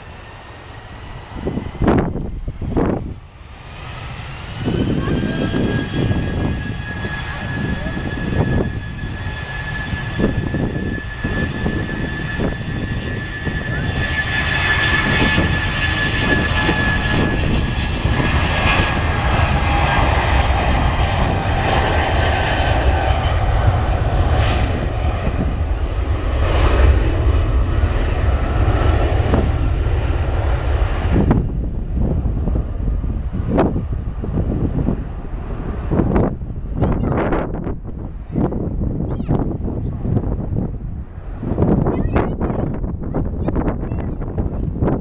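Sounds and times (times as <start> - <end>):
jet engines at takeoff thrust: 0.0 - 45.0.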